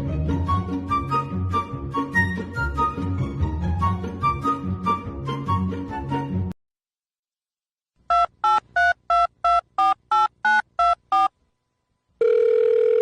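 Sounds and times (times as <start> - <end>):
phone ringing tone: 8.1 - 11.3, 12.2 - 13.0
touch-tone keypad beeps: 8.1 - 11.3.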